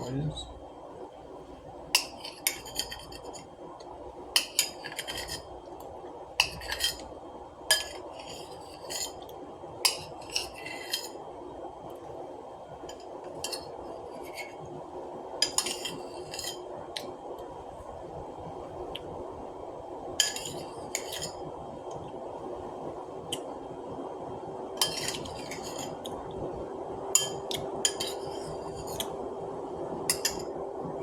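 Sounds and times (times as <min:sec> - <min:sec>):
background hum: 0:00.0 - 0:31.0
spoon scraping a dish: 0:02.0 - 0:03.5, 0:04.4 - 0:05.6, 0:06.4 - 0:07.1, 0:07.7 - 0:11.3, 0:12.8 - 0:14.7, 0:15.4 - 0:16.7, 0:20.2 - 0:21.5, 0:24.8 - 0:26.2, 0:27.2 - 0:29.2, 0:30.1 - 0:30.6.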